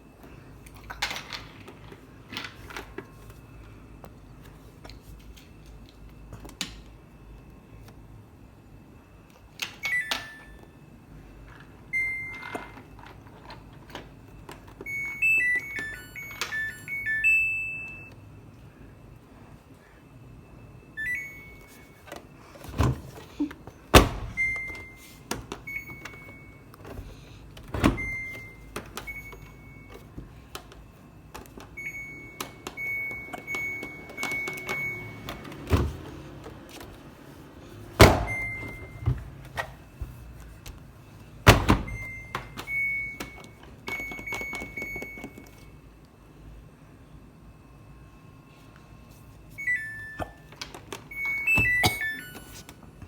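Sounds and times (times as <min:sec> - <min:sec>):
washing machine button beeps: 0:09.7 - 0:10.7, 0:11.9 - 0:12.9, 0:14.8 - 0:18.2, 0:21.0 - 0:22.1, 0:23.9 - 0:30.2, 0:31.5 - 0:36.2, 0:38.0 - 0:40.0, 0:41.5 - 0:45.7, 0:49.6 - 0:50.5, 0:51.1 - 0:52.7.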